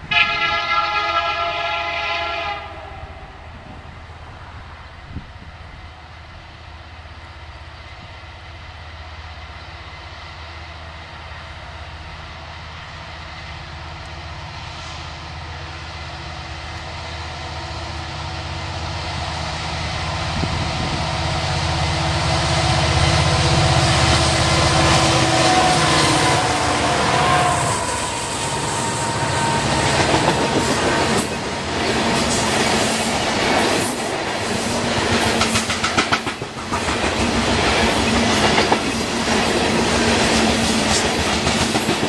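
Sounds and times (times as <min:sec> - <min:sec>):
locomotive engine drone: 0:03.0 - 0:35.4
wheels on rails hiss: 0:04.9 - 0:42.0.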